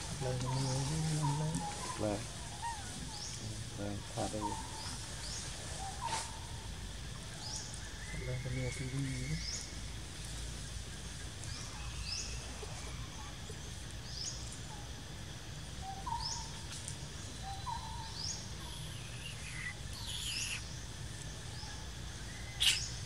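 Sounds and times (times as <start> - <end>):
outdoor background noise: 0.0 - 23.0
lower short bird calls: 15.8 - 20.9, 21.5 - 23.0
falling bird call: 17.5 - 20.7, 22.3 - 23.0.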